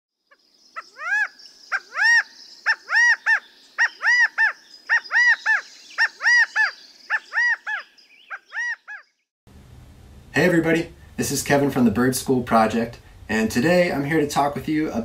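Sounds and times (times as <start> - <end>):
bird calling rising and falling: 0.2 - 9.3.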